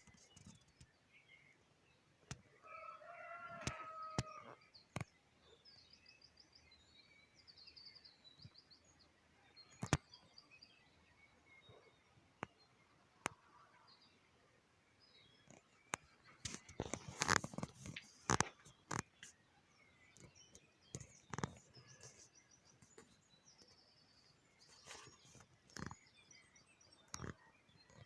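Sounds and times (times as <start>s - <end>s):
small birds trilling: 2.3s - 28.0s
rooster crowing: 2.6s - 4.5s.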